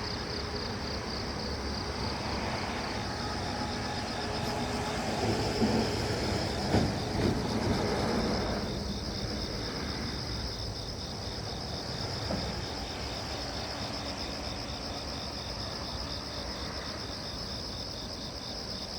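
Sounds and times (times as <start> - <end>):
insects trilling: 0.0 - 18.9.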